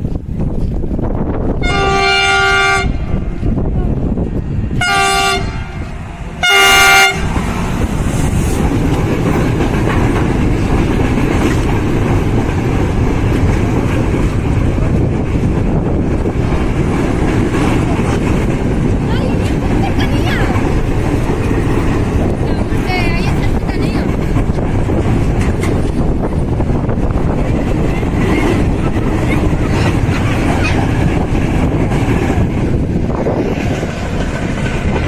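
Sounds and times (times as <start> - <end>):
freight train rumbling past: 0.0 - 35.0
train horn blasts: 1.6 - 3.3, 4.7 - 7.4.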